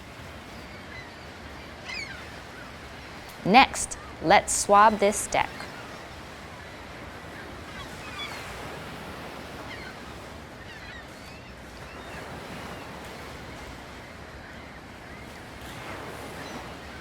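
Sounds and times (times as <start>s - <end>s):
ocean waves washing: 3.4s - 5.7s.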